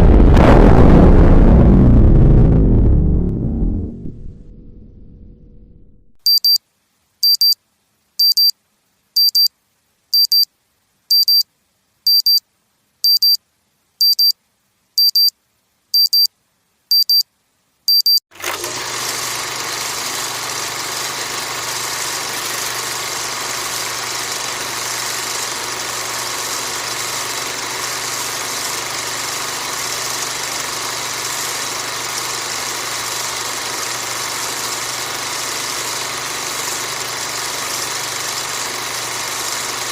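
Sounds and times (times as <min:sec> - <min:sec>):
short high electronic beeps: 0:06.2 - 0:06.6, 0:07.2 - 0:07.6, 0:08.2 - 0:08.6, 0:09.2 - 0:09.5, 0:10.2 - 0:10.5, 0:11.1 - 0:11.5, 0:12.1 - 0:12.4, 0:13.0 - 0:13.4, 0:14.0 - 0:14.4, 0:15.0 - 0:15.3, 0:16.0 - 0:16.3, 0:16.9 - 0:17.2, 0:17.9 - 0:18.2
motor running with low hum: 0:18.4 - 0:39.9.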